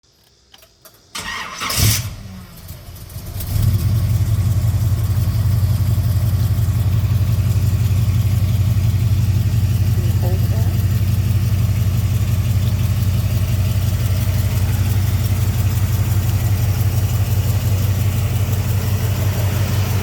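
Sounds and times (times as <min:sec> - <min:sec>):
car engine starting and idling: 0:00.1 - 0:20.0.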